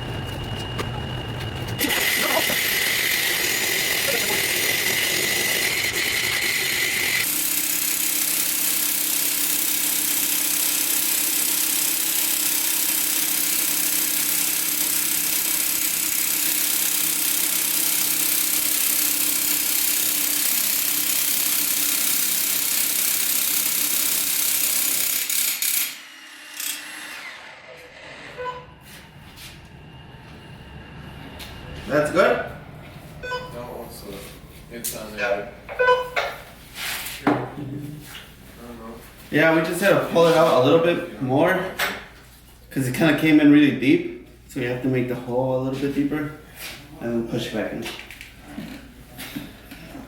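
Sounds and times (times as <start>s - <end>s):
power tool hissing and humming: 1.8s - 28.1s.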